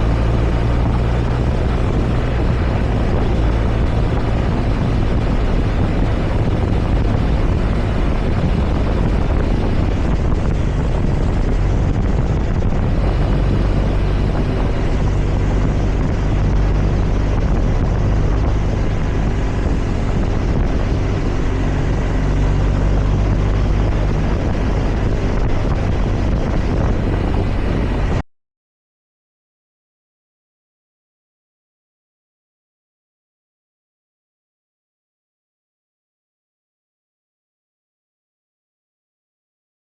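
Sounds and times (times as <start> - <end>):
low steady hum: 0.0 - 26.0
motorcycle engine running: 0.0 - 28.2
wind noise: 0.0 - 28.2.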